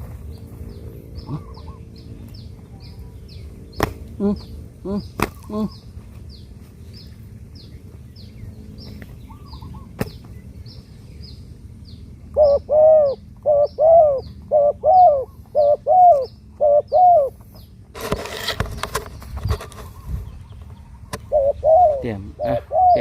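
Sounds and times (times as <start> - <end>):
dove cooing: 1.2 - 2.0, 12.4 - 17.4, 21.0 - 23.0.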